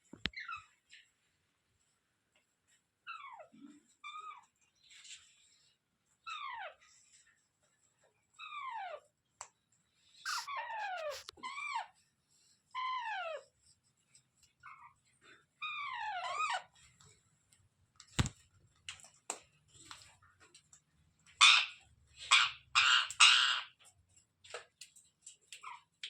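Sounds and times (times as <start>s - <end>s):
parrot calling: 10.3s - 11.3s
parrot screeching: 10.3s - 11.7s, 22.3s - 23.7s.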